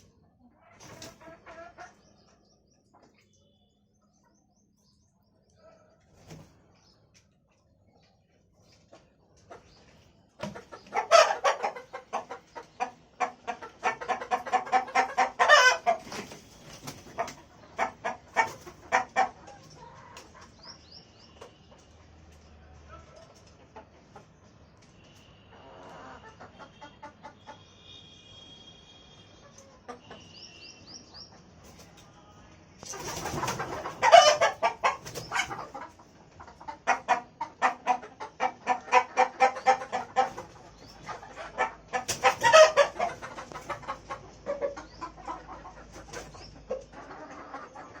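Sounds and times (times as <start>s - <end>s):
hens clucking: 0.0s - 3.3s, 7.2s - 22.0s, 22.8s - 24.9s, 25.5s - 27.6s, 29.4s - 30.3s, 32.8s - 48.0s.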